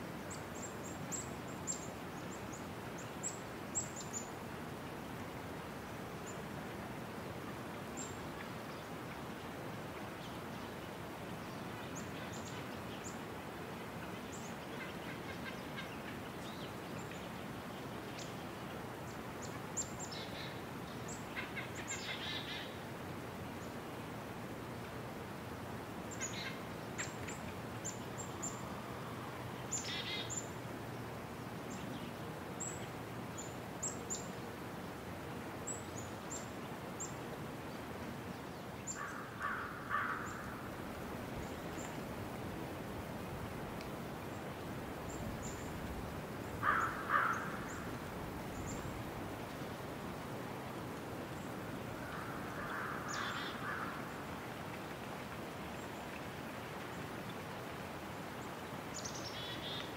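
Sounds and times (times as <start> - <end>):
outdoor background hiss: 0.0 - 59.9
songbirds chirping: 0.1 - 59.9
downward-sweeping bird calls: 46.6 - 47.9, 52.0 - 54.0.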